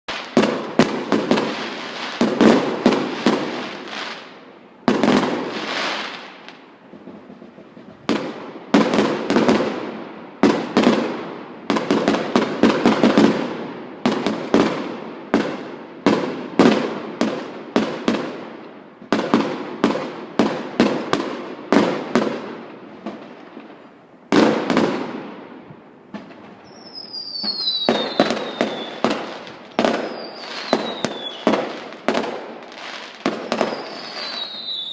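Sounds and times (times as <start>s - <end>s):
fireworks bangs and crackle: 0.1s - 34.9s
high whistles gliding downward: 26.6s - 31.4s, 32.6s - 34.9s.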